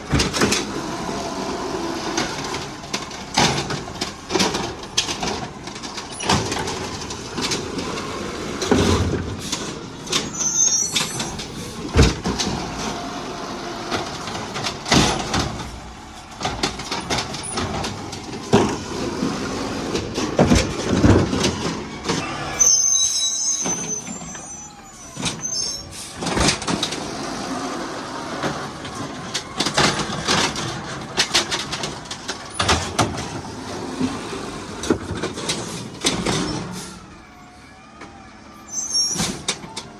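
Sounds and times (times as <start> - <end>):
garbage truck engine running: 0.0 - 39.9
metal clanks and knocks: 13.9 - 22.7
high-pitched squeal: 21.6 - 27.3.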